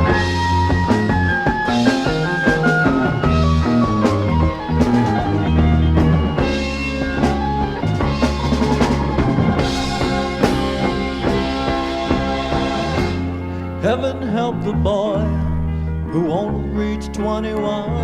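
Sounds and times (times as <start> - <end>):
drum kit beat: 0.0 - 13.4
rock band instrumental: 0.0 - 14.4.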